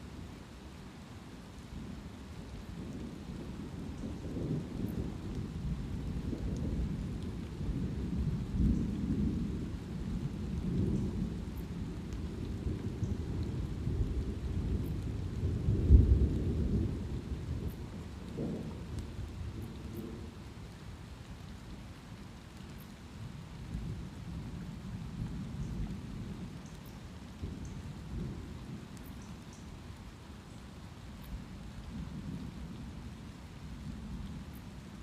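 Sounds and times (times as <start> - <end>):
light rain: 0.0 - 35.0
low rolling thunder: 2.7 - 20.8, 27.3 - 29.0
raindrop ticks: 2.8 - 35.0.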